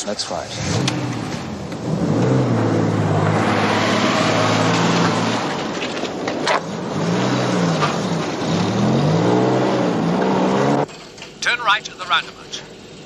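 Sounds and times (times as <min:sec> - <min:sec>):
car engine running and revving: 0:00.4 - 0:10.9.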